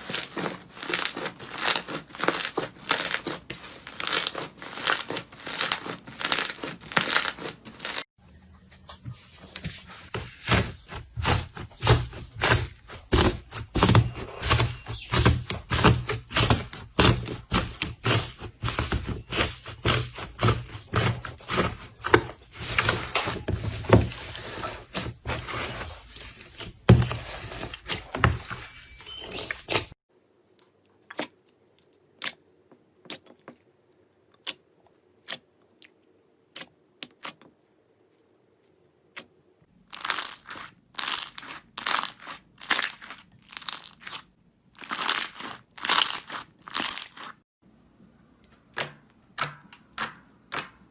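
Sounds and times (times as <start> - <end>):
slime clicking and popping: 48.8 - 50.8.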